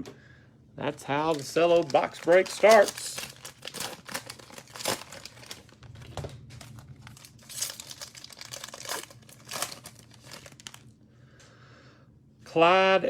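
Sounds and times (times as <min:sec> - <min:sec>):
cellophane wrapper crinkling: 0:00.9 - 0:11.0.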